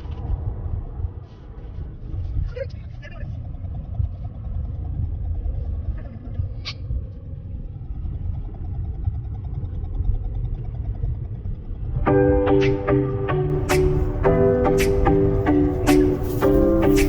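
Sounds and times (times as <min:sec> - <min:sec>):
car engine and road noise: 0:00.0 - 0:17.0
music with plucked notes: 0:12.1 - 0:17.0.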